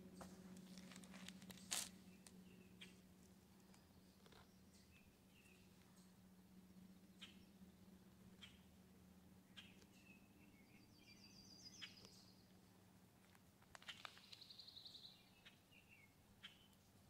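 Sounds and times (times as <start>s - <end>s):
birds trilling and chirping: 0.0s - 12.5s
low hum: 0.0s - 13.6s.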